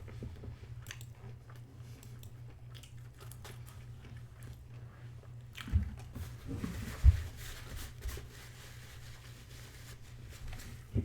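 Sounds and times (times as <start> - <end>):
person chewing crunchy food: 0.8 - 5.7.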